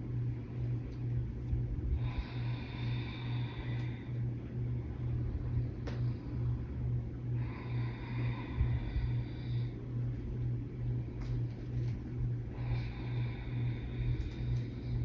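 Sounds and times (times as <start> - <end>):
pulsing low hum: 0.0 - 15.0
person breathing out: 2.0 - 4.3, 7.2 - 9.9, 12.4 - 15.0.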